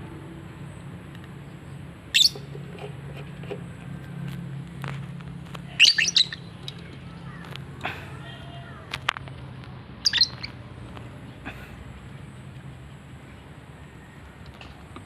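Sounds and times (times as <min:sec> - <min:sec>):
lovebird chirping and squawking: 0:02.1 - 0:02.6, 0:05.7 - 0:06.6, 0:10.0 - 0:10.6.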